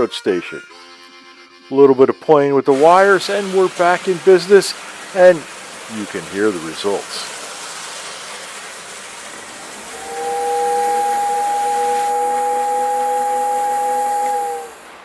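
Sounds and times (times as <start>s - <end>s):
steady hiss: 2.7s - 15.0s
toy train station whistle chord: 9.8s - 15.0s.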